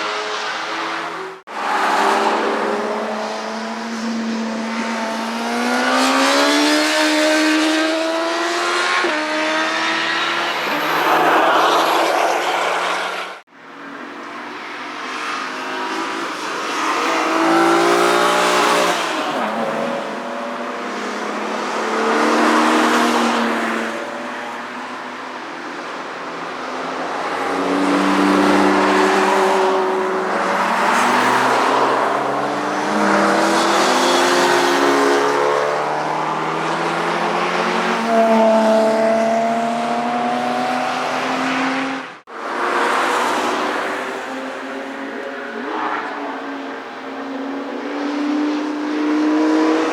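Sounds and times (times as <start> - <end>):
motorcycles passing at full throttle: 27.5 - 42.0.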